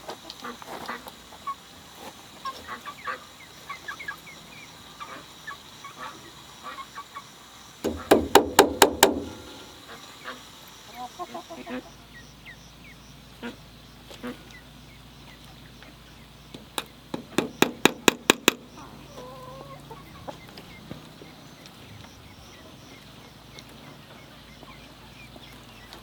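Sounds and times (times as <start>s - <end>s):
chickens clucking and chicks peeping: 2.4s - 17.6s, 18.4s - 26.0s
sharp knocks: 7.8s - 9.7s, 16.8s - 18.7s.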